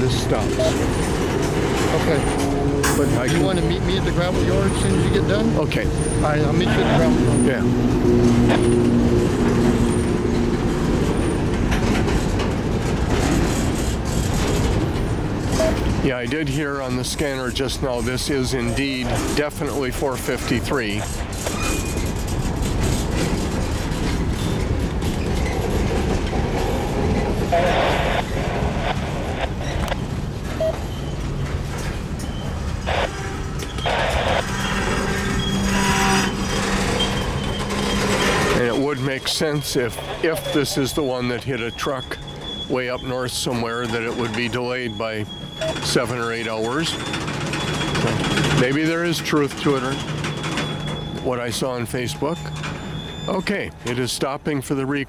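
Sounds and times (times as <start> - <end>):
steady tones: 0.0 - 30.2, 32.7 - 54.8
wheel clatter: 0.0 - 54.0
freight train rumbling: 0.0 - 55.0.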